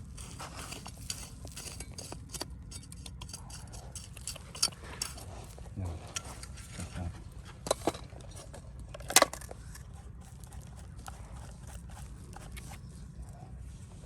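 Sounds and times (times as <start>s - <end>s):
steady low rumble: 0.0s - 14.0s
hard objects clicking and knocking: 0.2s - 5.3s.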